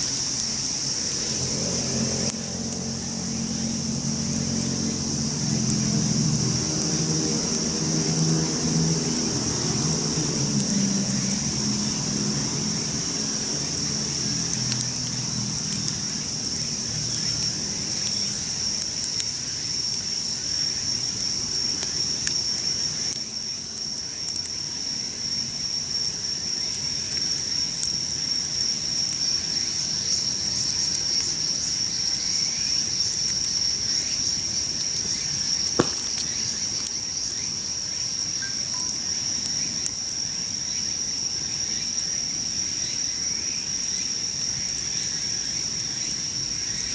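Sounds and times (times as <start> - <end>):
campfire crackling: 0.0 - 10.8, 32.8 - 37.6
insects chirring: 0.0 - 46.9.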